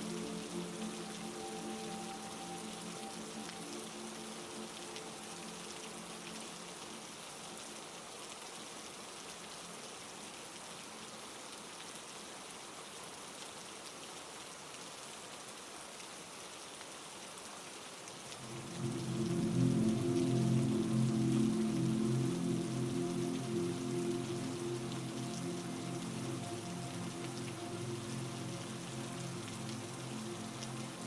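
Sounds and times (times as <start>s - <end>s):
music pad: 0.0s - 8.1s, 18.3s - 31.0s
heavy rain falling: 0.0s - 31.0s.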